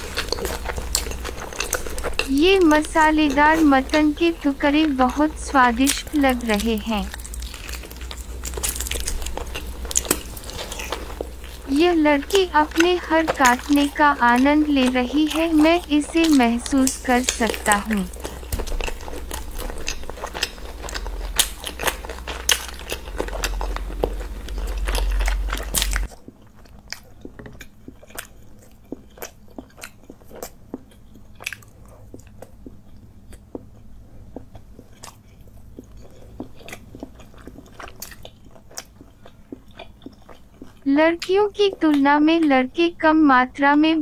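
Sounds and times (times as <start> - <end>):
low hum: 0.0 - 26.1
wet chewing: 0.0 - 43.2.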